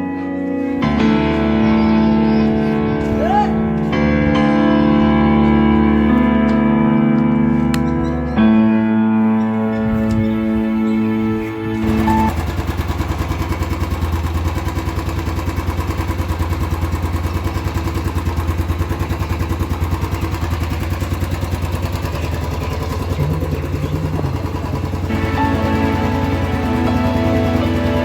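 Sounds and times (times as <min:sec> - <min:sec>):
motorcycle engine idling: 0:11.7 - 0:28.0.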